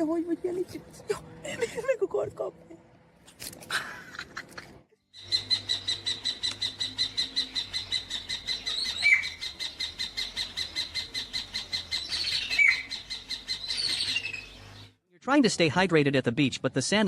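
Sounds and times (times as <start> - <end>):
bird calling high notes: 5.2 - 15.0.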